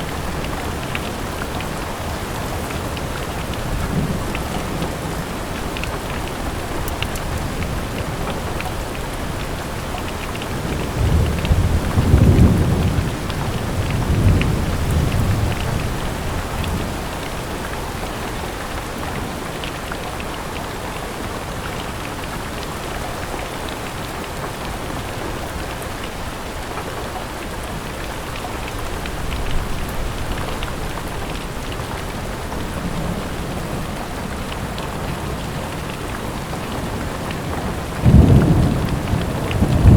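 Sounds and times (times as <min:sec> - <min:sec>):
raindrop ticks: 0:00.0 - 0:39.9
steady rain: 0:00.0 - 0:39.9
low thunder rumble: 0:10.6 - 0:17.0, 0:32.3 - 0:39.9.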